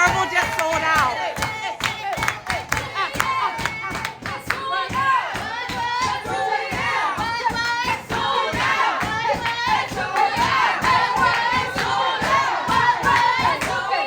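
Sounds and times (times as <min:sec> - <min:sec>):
group singing and shouting: 0:00.0 - 0:14.0
rhythmic hand claps: 0:00.0 - 0:14.0.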